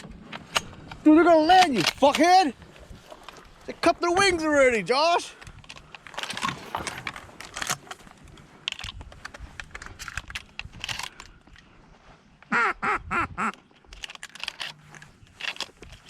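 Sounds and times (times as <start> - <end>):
duck quacking loudly: 12.5 - 13.6.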